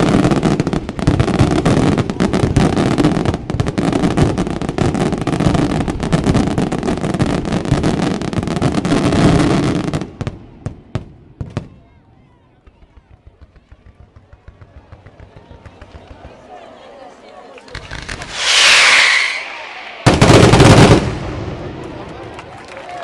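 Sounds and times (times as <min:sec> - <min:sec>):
fireworks bangs and crackling: 0:00.0 - 0:16.6, 0:17.7 - 0:22.6.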